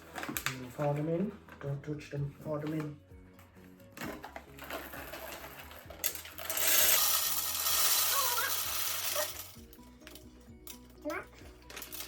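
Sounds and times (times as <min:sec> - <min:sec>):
coffee beans pouring: 0:04.5 - 0:09.8, 0:11.6 - 0:12.0.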